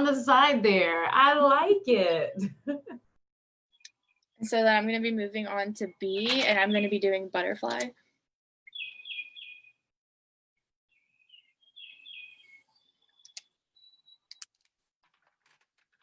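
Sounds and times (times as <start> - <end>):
songbird chirping: 3.7 - 8.0, 8.6 - 9.9, 10.9 - 14.6
sharp clicks: 13.2 - 13.6, 14.2 - 14.7.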